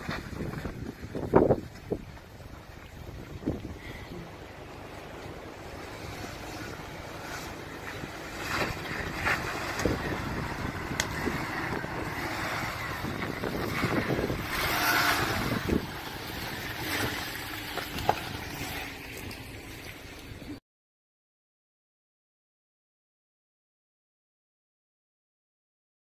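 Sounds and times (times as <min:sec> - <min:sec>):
off-road vehicle engine: 0:00.0 - 0:20.6.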